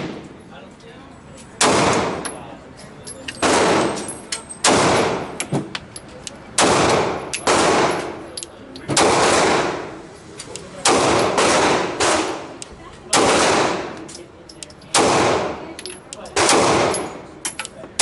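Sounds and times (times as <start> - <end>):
pistol shots with echo: 1.6 - 2.2, 3.4 - 4.0, 4.6 - 5.4, 6.6 - 8.2, 8.9 - 10.0, 10.8 - 14.0, 14.9 - 15.6, 16.4 - 17.2.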